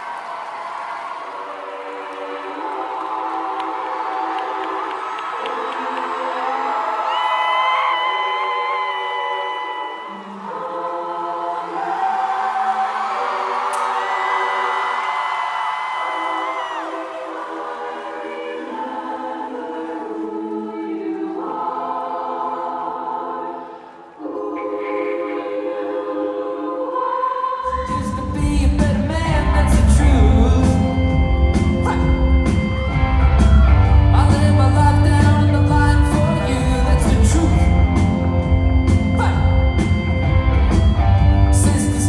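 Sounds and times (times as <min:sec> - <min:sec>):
person singing: 0:24.2 - 0:40.1, 0:41.1 - 0:42.0
drums and bass: 0:27.8 - 0:42.0
live band playing: 0:28.8 - 0:42.0.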